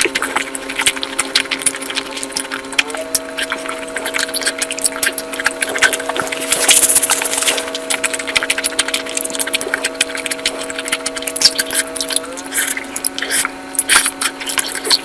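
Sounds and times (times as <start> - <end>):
food crunching while chewed: 0.0 - 15.0
steady hum: 0.0 - 15.0.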